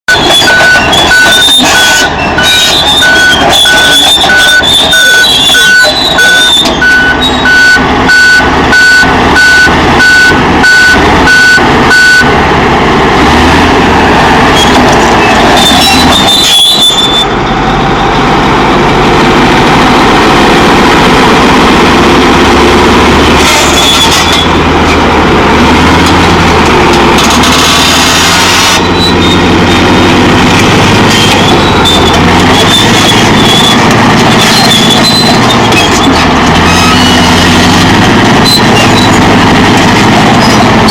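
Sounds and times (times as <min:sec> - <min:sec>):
bulldozer diesel engine running: 0:00.0 - 0:40.9
reversing alarm beeping: 0:00.1 - 0:12.3
track clatter: 0:00.1 - 0:40.9.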